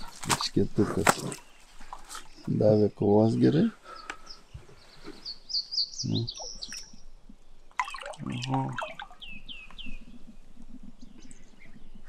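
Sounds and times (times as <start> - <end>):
water dripping and splashing: 0.0 - 2.2, 6.4 - 9.8
small birds chirping: 0.0 - 12.0.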